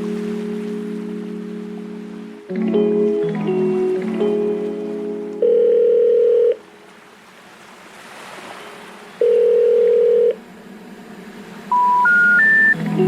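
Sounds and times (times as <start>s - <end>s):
sea waves hissing: 0.0s - 2.5s, 6.7s - 9.4s, 10.4s - 13.0s
electronic beeps: 11.7s - 12.8s.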